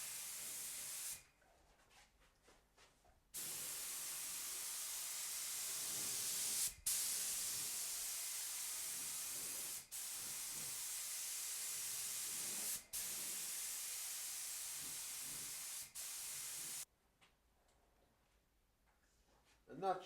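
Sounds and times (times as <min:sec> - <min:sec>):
spray gun hissing: 0:00.0 - 0:01.2, 0:03.4 - 0:16.9.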